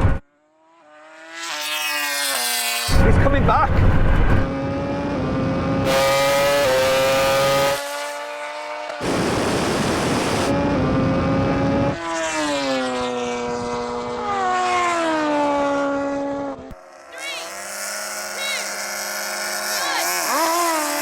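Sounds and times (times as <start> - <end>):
racing car engine: 0.0 - 21.0
rushing wind noise: 9.0 - 12.0.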